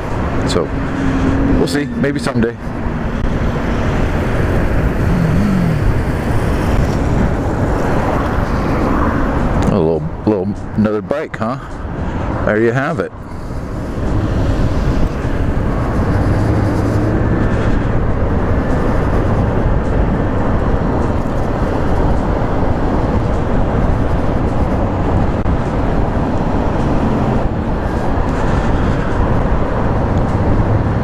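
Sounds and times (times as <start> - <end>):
road noise: 0.0 - 31.0
rushing wind: 0.0 - 31.0.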